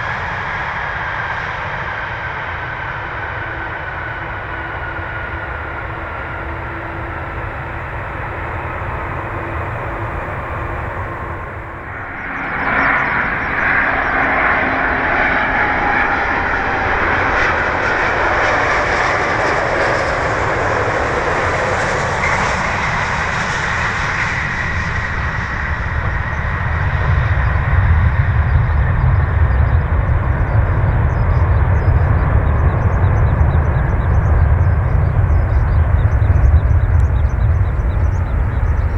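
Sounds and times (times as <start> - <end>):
jet engines whining: 0.0 - 38.9
low rumble: 23.4 - 38.9.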